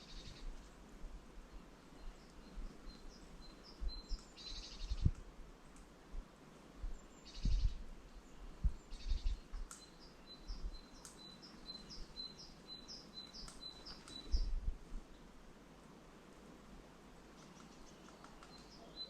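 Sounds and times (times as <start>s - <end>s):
songbirds chattering: 6.8s - 14.6s, 17.3s - 19.0s.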